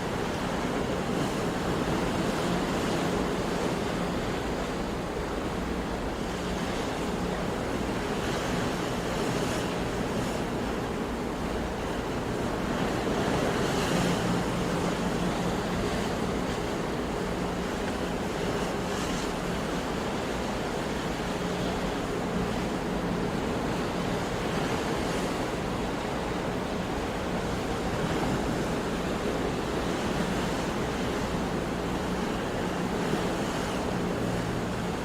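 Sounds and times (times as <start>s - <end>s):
sea waves washing ashore: 0.0s - 35.0s.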